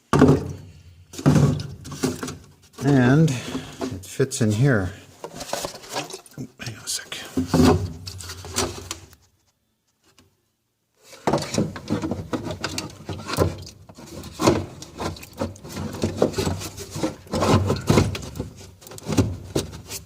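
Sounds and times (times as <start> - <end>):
plastic jug knocking and clicking: 0.1 - 0.6.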